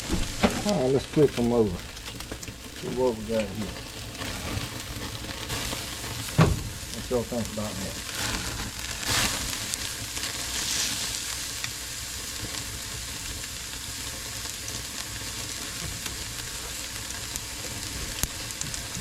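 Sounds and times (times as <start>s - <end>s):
steaks sizzling on grill: 0.0s - 19.0s.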